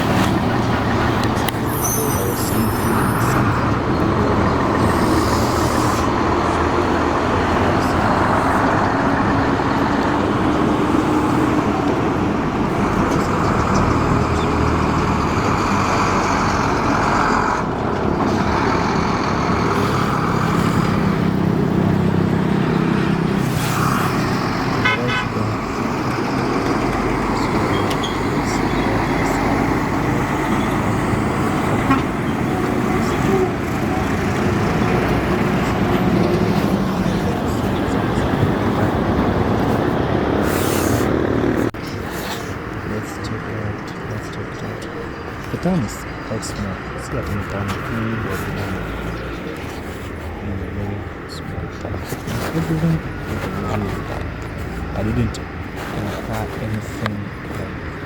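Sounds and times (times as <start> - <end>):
vehicle engines running: 0.0 - 58.0
car horn toot: 24.8 - 25.5, 31.8 - 32.2.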